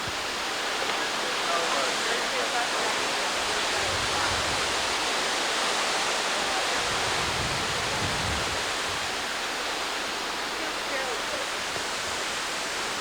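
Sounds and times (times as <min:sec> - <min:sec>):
wind rushing through trees: 0:00.0 - 0:13.0
gusts buffeting microphone: 0:03.3 - 0:13.0.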